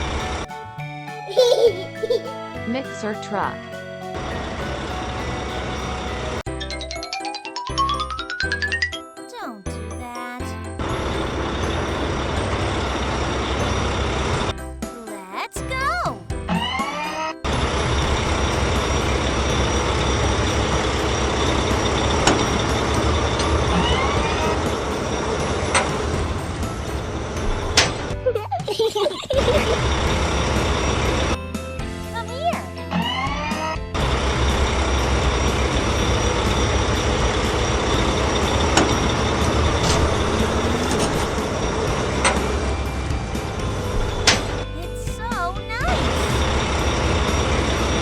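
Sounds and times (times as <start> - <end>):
cartoon truck engine rumble: 10.8 - 15.0, 16.3 - 48.0.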